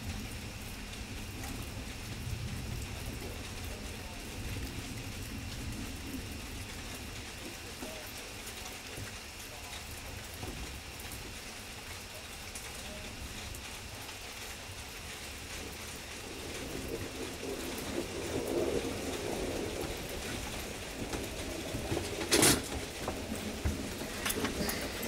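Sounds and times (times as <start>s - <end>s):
heavy rain: 0.0s - 25.0s.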